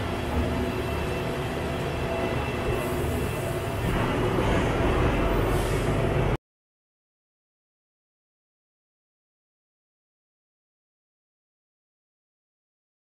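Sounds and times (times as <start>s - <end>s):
faint steady tones: 0.0s - 6.3s
train rumble: 0.0s - 6.4s.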